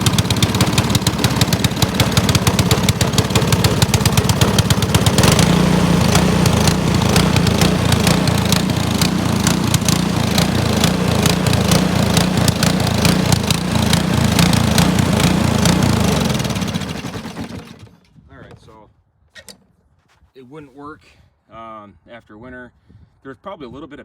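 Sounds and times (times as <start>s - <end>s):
snowblower engine running: 0.0s - 18.0s.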